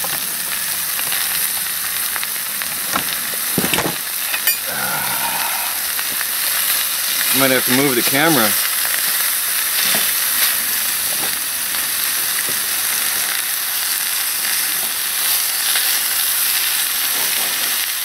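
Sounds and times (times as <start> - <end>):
food sizzling in a wok: 0.0 - 18.0.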